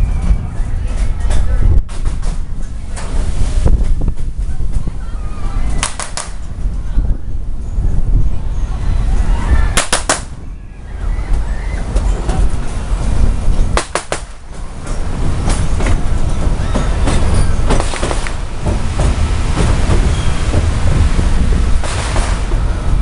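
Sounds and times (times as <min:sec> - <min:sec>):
train wheels rumbling on track: 0:00.0 - 0:23.0
wheels clicking over rail joints: 0:00.0 - 0:23.0.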